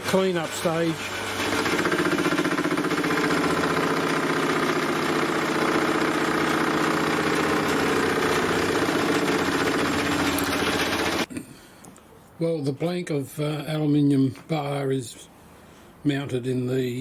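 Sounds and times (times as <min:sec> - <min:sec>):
metal lathe running: 0:00.0 - 0:11.3.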